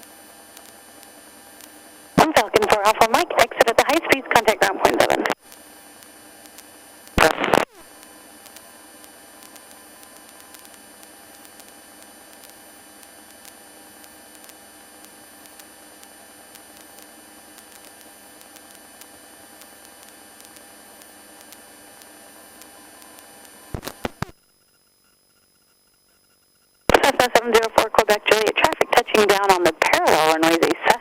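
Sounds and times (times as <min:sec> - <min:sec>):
electrical hum and whine: 0:00.0 - 0:31.0
radio hiss: 0:02.2 - 0:05.4, 0:06.5 - 0:10.7, 0:16.6 - 0:24.4, 0:26.9 - 0:31.0.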